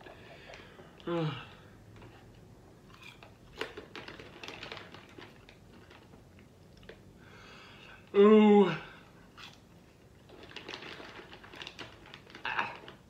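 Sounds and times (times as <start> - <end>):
person chewing crunchy food: 2.8 - 4.8, 9.2 - 9.7.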